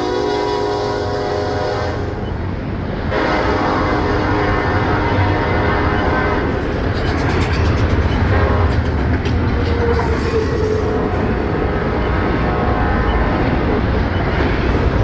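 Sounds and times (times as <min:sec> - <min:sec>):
train horn chord: 0:00.0 - 0:02.2, 0:03.1 - 0:06.5
diesel locomotive rumble: 0:00.0 - 0:15.0
rail cars rolling on rails: 0:00.0 - 0:15.0
train wheels clicking: 0:05.8 - 0:15.0.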